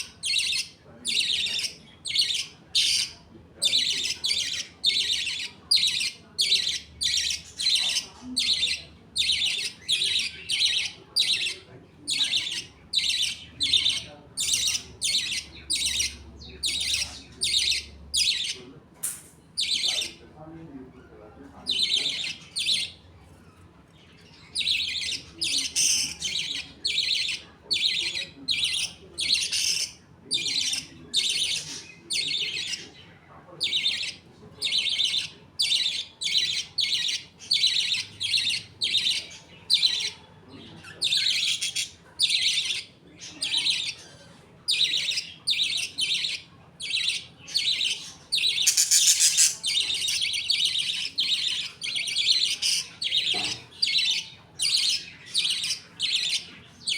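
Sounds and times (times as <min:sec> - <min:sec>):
budgerigars chirping: 0:00.0 - 0:18.8, 0:19.5 - 0:56.9.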